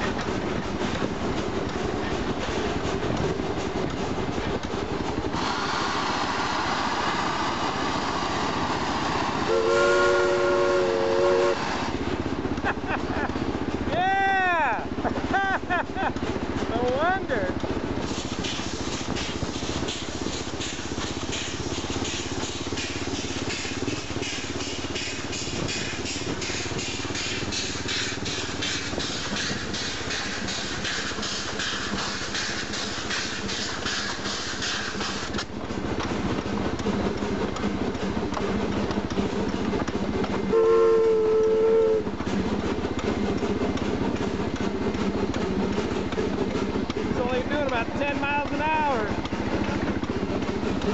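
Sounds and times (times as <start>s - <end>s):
steam whistle chord: 9.5s - 11.8s, 40.5s - 42.0s.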